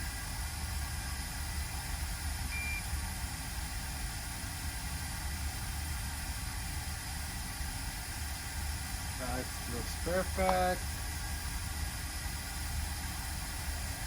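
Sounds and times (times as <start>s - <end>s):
electrical hum and hiss: 0.0s - 14.0s
short high beep: 2.5s - 2.9s.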